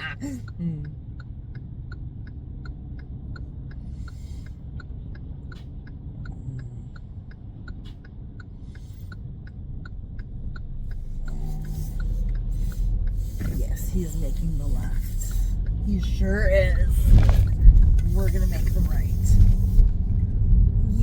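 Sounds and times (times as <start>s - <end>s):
idling car cabin rumble: 0.0s - 21.0s
turn signal ticking: 0.0s - 21.0s.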